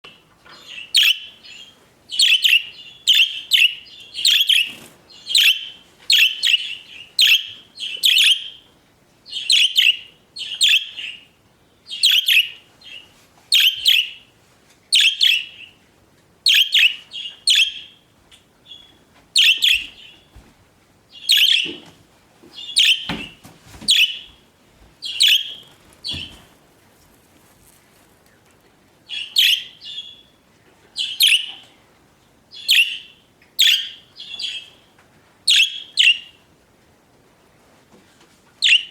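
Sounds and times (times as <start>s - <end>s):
budgerigars chirping and warbling: 0.6s - 8.7s, 9.3s - 11.3s, 11.9s - 14.2s, 14.9s - 15.8s, 16.5s - 18.0s, 18.7s - 20.2s, 21.1s - 21.8s, 22.6s - 24.3s, 25.0s - 26.4s, 29.1s - 30.3s, 31.0s - 31.7s, 32.6s - 34.8s, 35.5s - 36.4s, 38.6s - 38.9s.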